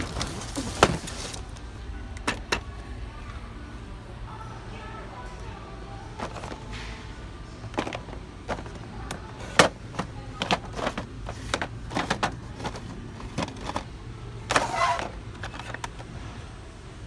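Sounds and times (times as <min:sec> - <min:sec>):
knocks and clicks of handling: 0:02.2 - 0:02.7, 0:06.2 - 0:06.9, 0:07.5 - 0:16.1
loud clatter: 0:06.2 - 0:06.7, 0:07.6 - 0:13.9, 0:14.5 - 0:16.1.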